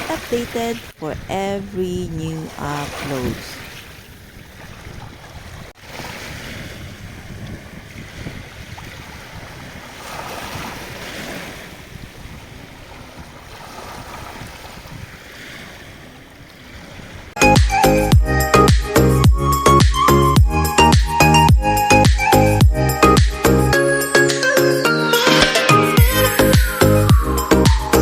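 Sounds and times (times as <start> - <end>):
sea waves washing onto beach: 0.0 - 17.4
wind buffeting microphone: 0.0 - 17.4.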